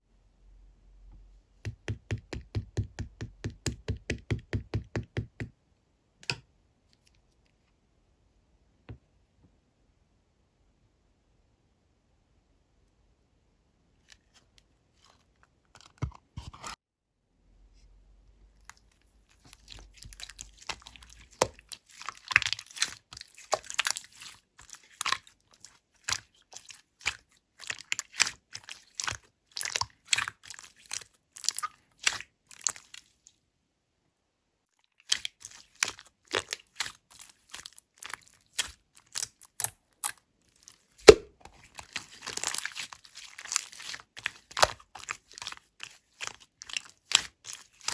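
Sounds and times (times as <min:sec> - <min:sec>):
slime clicking and popping: 0:41.0 - 0:41.3.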